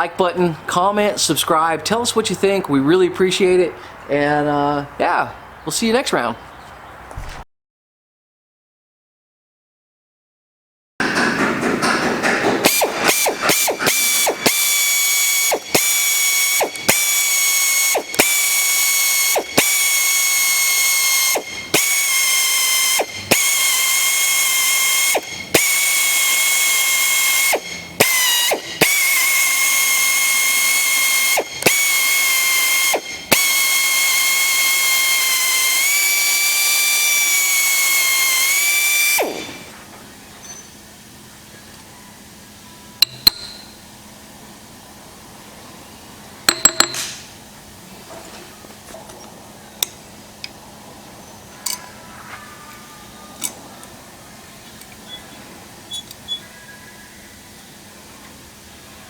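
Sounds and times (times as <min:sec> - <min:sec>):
geared mechanism whining: 0:11.1 - 0:39.8.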